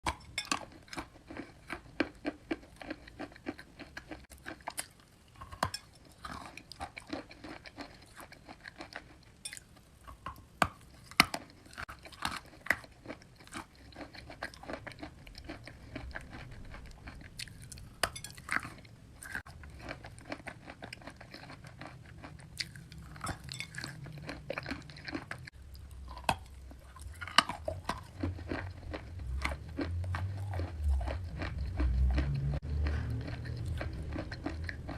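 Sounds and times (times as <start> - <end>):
chalk being chewed: 26.2 - 34.9
low rumble: 28.8 - 34.9.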